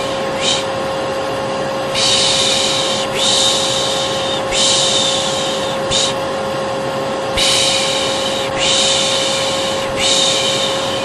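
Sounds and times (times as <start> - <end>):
person shushing: 0.0 - 0.7, 2.0 - 6.2, 7.4 - 11.0
vacuum cleaner drone: 0.0 - 11.0.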